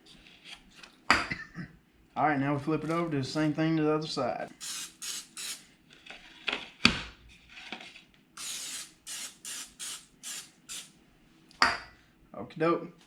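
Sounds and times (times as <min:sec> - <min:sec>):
oil spray bottle spritzing: 0:04.6 - 0:05.6, 0:08.4 - 0:10.9.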